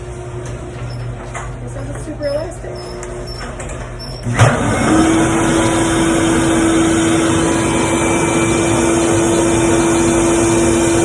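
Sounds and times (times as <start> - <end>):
shop vacuum blowing air: 4.2 - 11.0.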